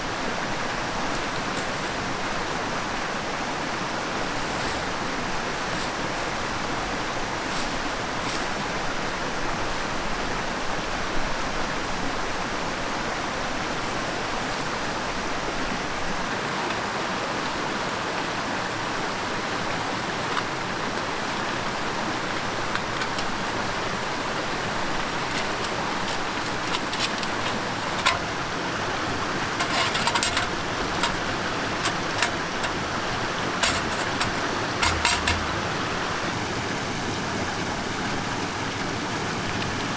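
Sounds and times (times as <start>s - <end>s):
sharp clicks and knocks: 22.4s - 36.3s.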